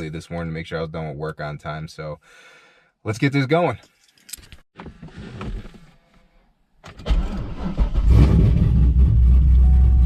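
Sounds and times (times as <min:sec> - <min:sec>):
car engine cranking and running: 0:06.8 - 0:10.0.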